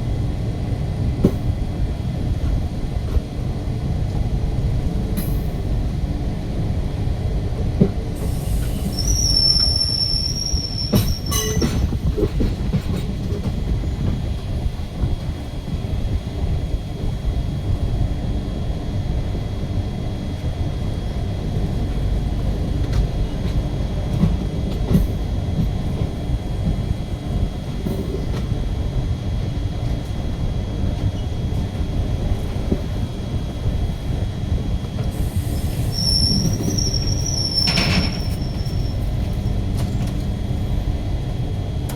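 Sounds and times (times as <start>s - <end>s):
train rumbling on track: 0.0s - 41.9s
high-pitched wheel squeal: 8.8s - 11.9s, 35.7s - 39.0s.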